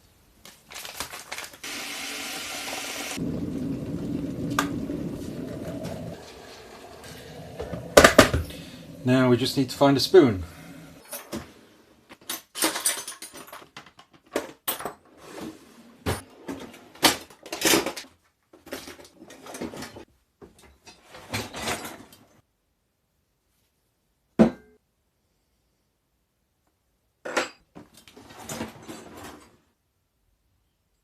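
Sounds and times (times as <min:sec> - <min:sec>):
hard objects clattering and rattling: 0:03.2 - 0:11.5.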